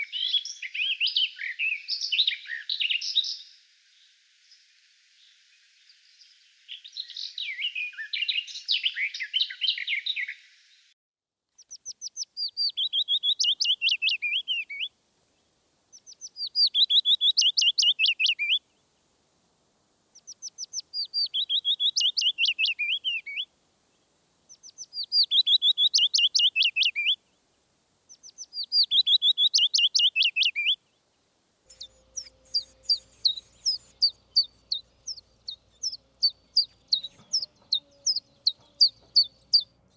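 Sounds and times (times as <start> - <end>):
songbirds singing: 0.0 - 10.9, 11.6 - 19.1, 20.1 - 39.9
quick high bird chirps: 20.2 - 23.4, 24.5 - 27.2, 28.1 - 30.8, 31.7 - 39.7.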